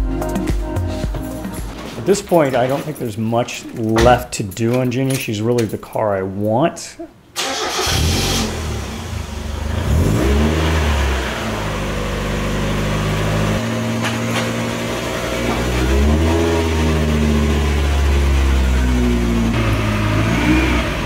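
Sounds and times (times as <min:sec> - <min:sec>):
car engine idling and revving: 0:07.5 - 0:21.0.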